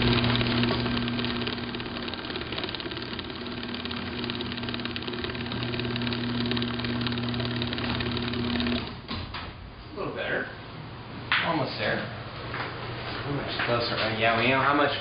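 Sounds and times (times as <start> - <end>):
garage door opener motor: 0.0 - 9.5.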